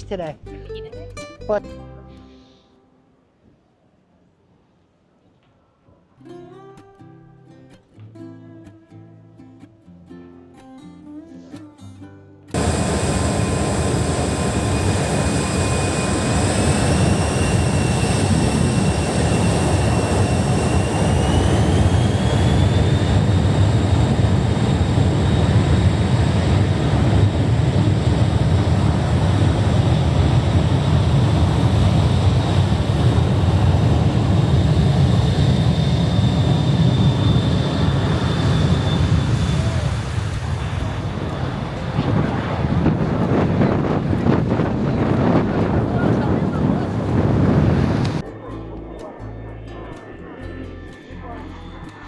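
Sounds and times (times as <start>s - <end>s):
jet engines rumbling and whining: 12.5s - 52.0s.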